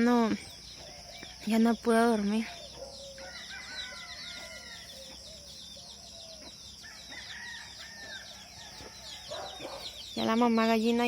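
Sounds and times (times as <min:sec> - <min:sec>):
small birds chirping: 0:00.0 - 0:11.0
distant roosters crowing: 0:02.2 - 0:10.4.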